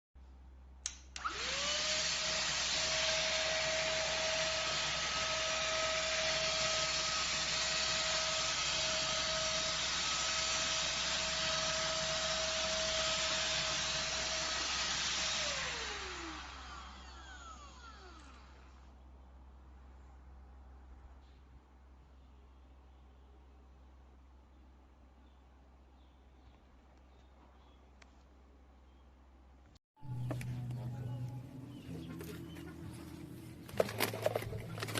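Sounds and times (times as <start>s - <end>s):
vacuum cleaner motor running: 1.2s - 18.8s.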